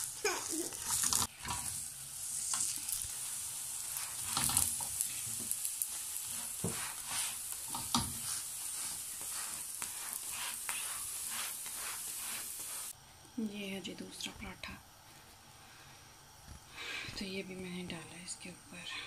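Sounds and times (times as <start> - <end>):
wooden spatula scraping: 0.0 - 1.8, 2.4 - 13.0
flatbread sizzling on griddle: 0.0 - 13.0.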